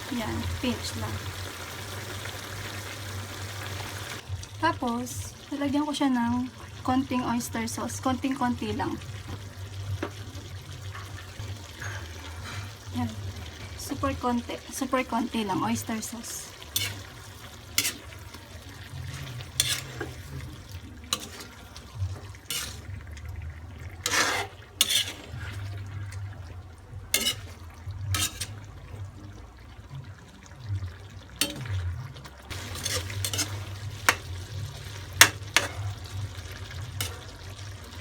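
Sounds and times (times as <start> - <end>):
spoon scraping pot: 16.5 - 23.0, 24.0 - 26.0, 27.1 - 28.6, 32.5 - 37.5.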